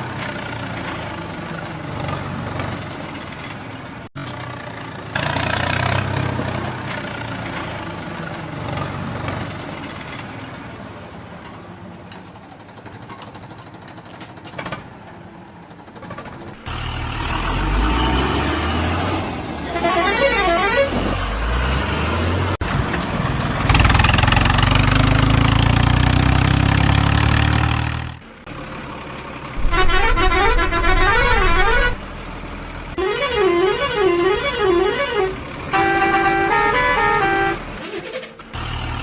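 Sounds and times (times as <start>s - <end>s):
heavy vehicle engine running: 0.0s - 39.0s
warbling horn: 29.6s - 32.0s, 33.0s - 37.6s.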